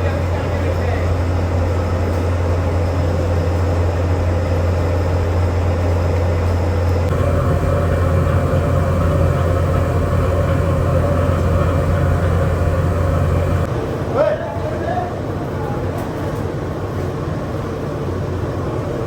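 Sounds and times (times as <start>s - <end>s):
heavy machinery drone: 7.1s - 13.7s.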